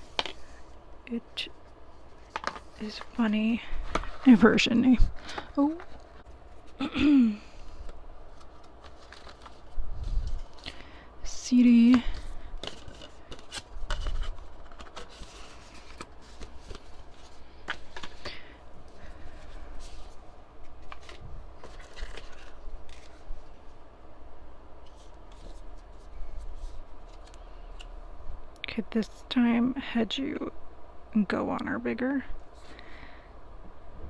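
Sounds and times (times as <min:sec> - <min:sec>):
paper and plastic rustling: 0:00.0 - 0:06.9, 0:07.6 - 0:10.8, 0:11.6 - 0:23.6, 0:24.8 - 0:27.4.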